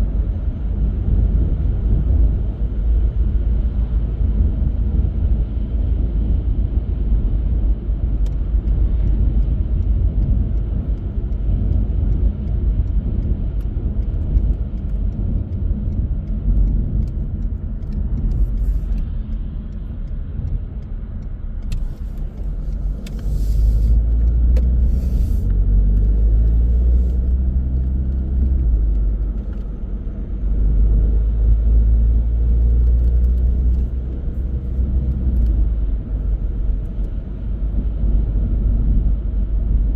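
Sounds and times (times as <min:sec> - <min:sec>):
car engine rumble: 0:00.0 - 0:39.9
road noise: 0:00.0 - 0:39.9
short hissing noises: 0:23.2 - 0:24.0, 0:24.8 - 0:25.5.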